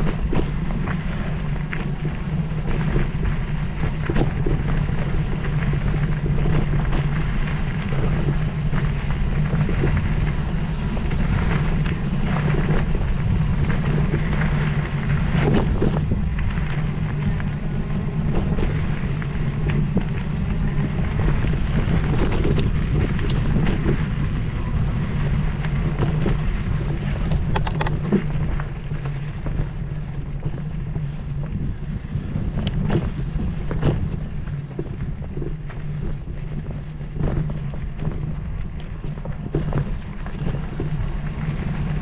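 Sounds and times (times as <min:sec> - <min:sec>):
low rumble: 0:00.0 - 0:42.0
wind buffeting microphone: 0:00.0 - 0:42.0
sharp clicks and knocks: 0:27.2 - 0:28.5.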